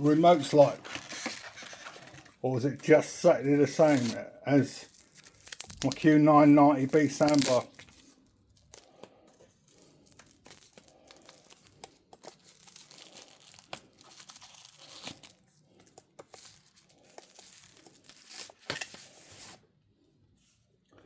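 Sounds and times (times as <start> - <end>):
packaging crinkling and tearing: 0.2 - 2.4, 3.3 - 19.6
small clicks and crackles: 6.9 - 18.9.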